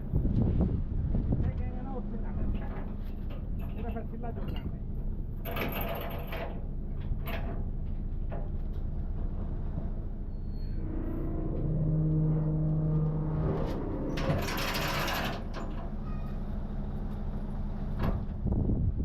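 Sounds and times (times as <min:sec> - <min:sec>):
low mechanical rumble: 0:00.0 - 0:19.0
machine hum: 0:10.6 - 0:17.4.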